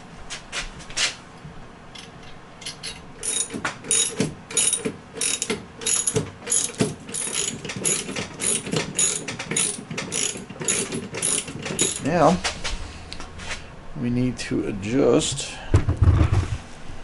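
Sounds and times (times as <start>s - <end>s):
socket ratchet clicking: 2.0s - 12.0s.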